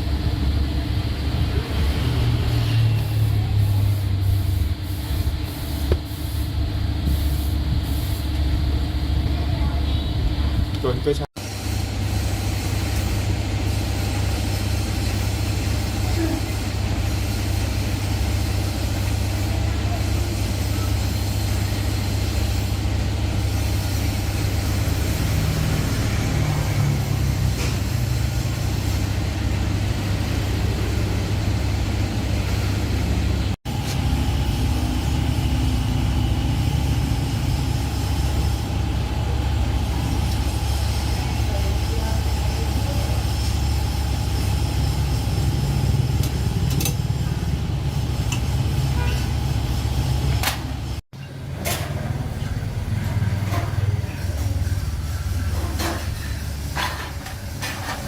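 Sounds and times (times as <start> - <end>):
low engine rumble: 12.6 - 58.0.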